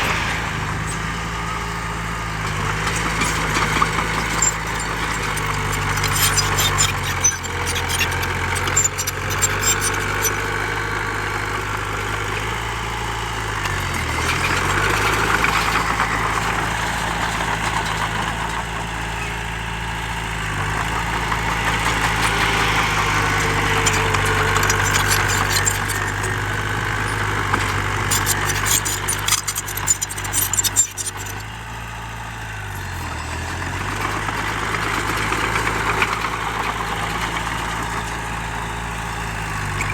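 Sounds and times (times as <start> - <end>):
diesel engine running: 0.0 - 39.9
rattling clicking clatter: 2.5 - 10.6, 21.5 - 31.5.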